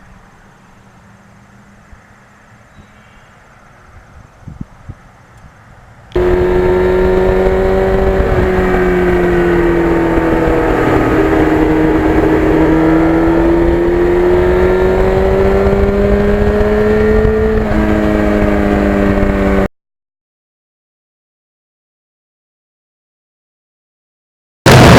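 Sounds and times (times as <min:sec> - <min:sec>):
motorcycle engine cruising: 0:04.9 - 0:19.7.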